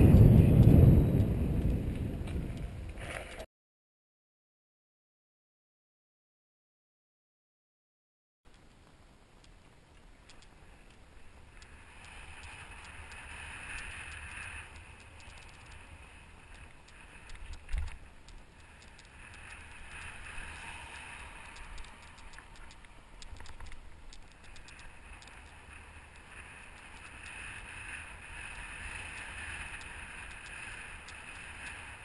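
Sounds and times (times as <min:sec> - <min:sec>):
low rumble: 0:00.0 - 0:03.4
wind rushing over microphone: 0:00.0 - 0:03.4
light clicks and rattles: 0:08.5 - 0:27.7.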